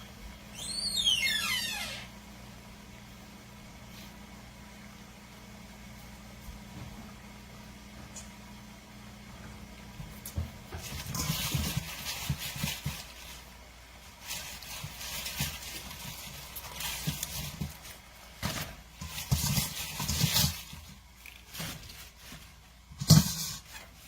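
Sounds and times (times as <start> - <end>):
boiling water: 2.1 - 24.0
vegetables rustling: 10.0 - 24.0.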